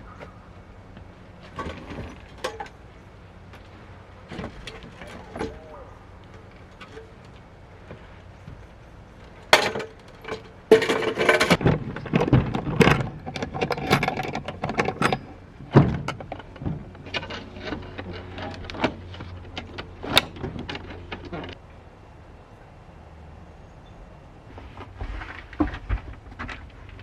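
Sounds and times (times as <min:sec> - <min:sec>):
objects knocking and rattling: 0:01.4 - 0:21.6.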